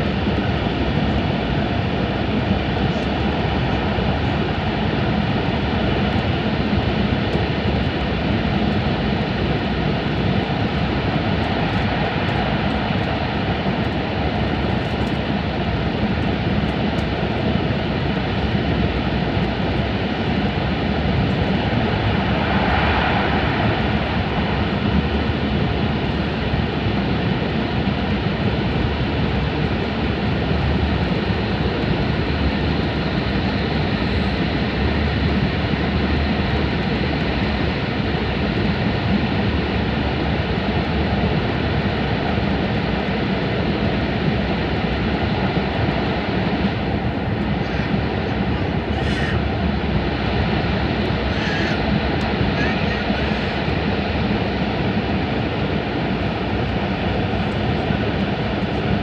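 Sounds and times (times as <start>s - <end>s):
high-speed train roar in tunnel: 0.0s - 59.0s.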